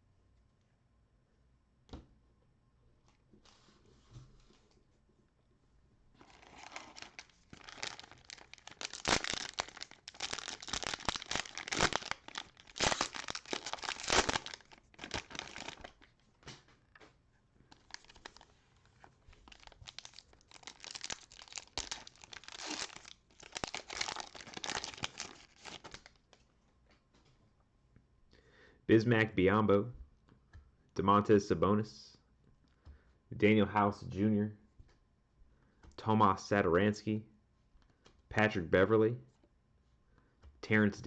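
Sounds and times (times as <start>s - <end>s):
cellophane wrapper crinkling and tearing: 6.2s - 16.2s, 17.7s - 26.4s.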